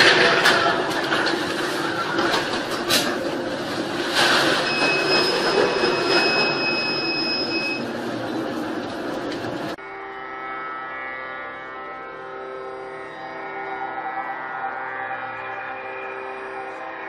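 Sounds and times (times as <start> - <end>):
steady high-pitched tone: 9.7 - 17.0.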